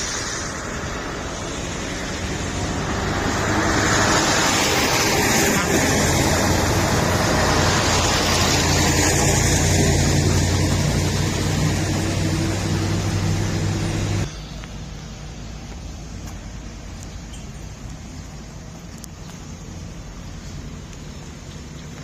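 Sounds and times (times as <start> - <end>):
loud rushing noise: 0.0 - 14.3
engine humming: 0.0 - 22.0.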